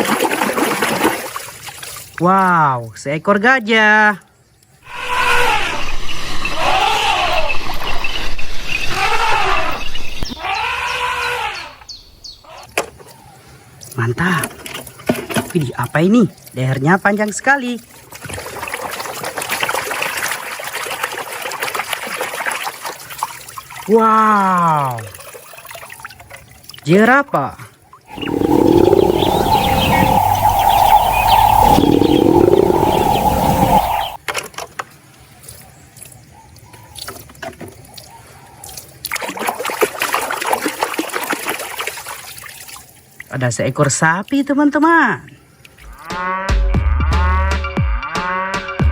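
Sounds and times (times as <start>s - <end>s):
water trickling and splashing: 0.0s - 2.6s, 13.0s - 46.0s.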